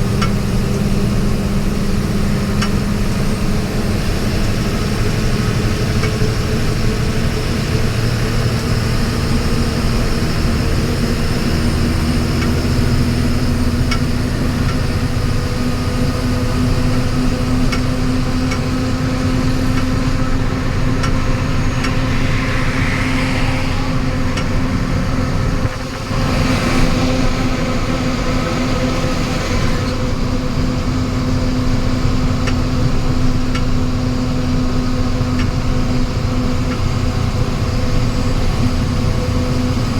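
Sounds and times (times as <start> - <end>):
constant droning tone: 0.0 - 39.9
road rumble: 0.0 - 39.9
vehicle engine hum: 0.0 - 39.9.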